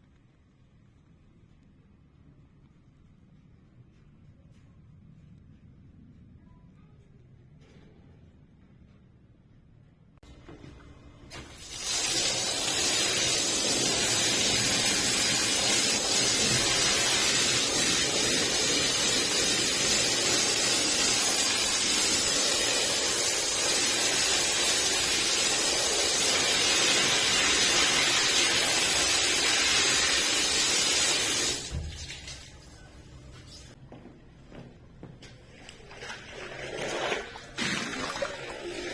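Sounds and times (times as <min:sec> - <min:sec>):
hissing spray: 0:11.4 - 0:31.8.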